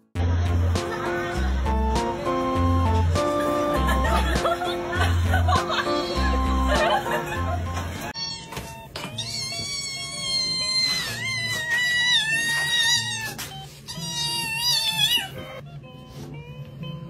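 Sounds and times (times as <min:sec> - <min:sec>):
soft background music: 0:00.4 - 0:09.2, 0:15.2 - 0:17.0
kitten mewing: 0:08.2 - 0:15.6.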